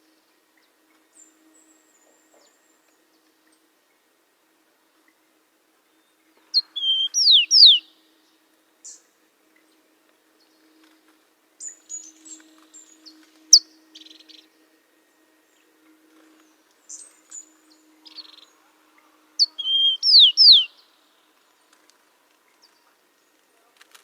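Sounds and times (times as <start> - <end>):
bird chirping and whistling: 6.6 - 7.8, 19.4 - 20.7.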